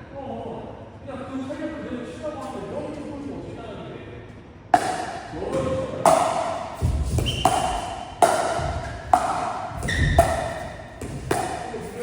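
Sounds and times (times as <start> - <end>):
paddles hitting plastic ball: 4.8 - 12.0
short high squeaks: 9.8 - 10.7.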